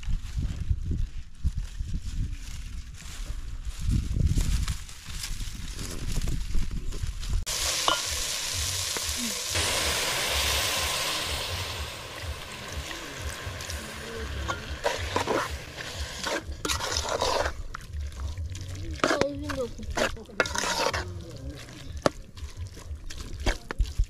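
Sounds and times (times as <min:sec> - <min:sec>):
fish sizzling in metal pot: 0:07.5 - 0:23.8
spoon scraping pot: 0:14.4 - 0:23.7.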